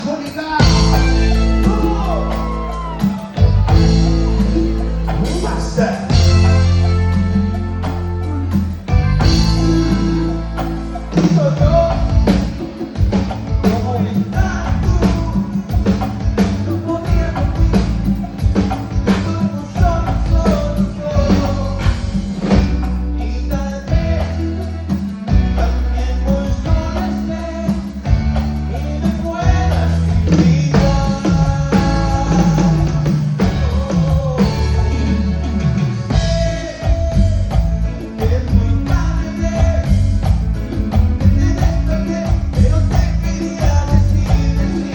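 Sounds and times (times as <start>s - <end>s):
bass line: 0.0s - 44.9s
guitar: 0.0s - 44.9s
lead singer singing: 0.0s - 44.9s
live band playing: 0.0s - 44.9s
steady drum beat: 0.0s - 44.9s.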